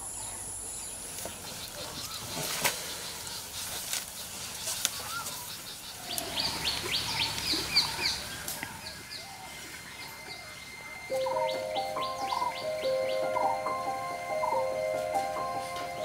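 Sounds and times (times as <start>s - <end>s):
birds chirping: 0.0s - 16.0s
thin steady high tone: 6.4s - 16.0s.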